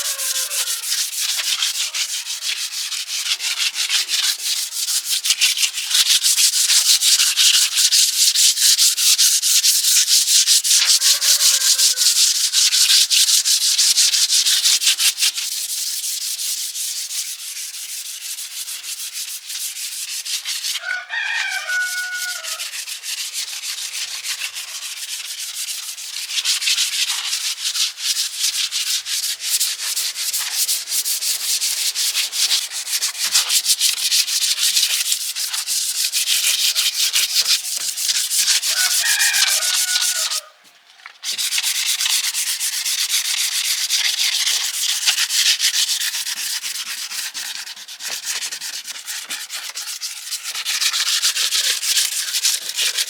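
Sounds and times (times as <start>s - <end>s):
rooster crowing: 0.0s - 2.4s, 10.8s - 12.3s, 20.8s - 22.8s, 38.6s - 40.7s
hand sanding strokes: 0.0s - 40.6s, 41.2s - 53.0s.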